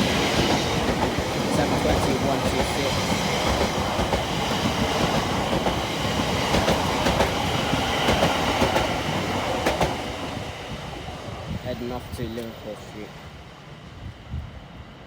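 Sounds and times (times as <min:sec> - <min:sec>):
train wheels rushing on rail: 0:00.0 - 0:15.0.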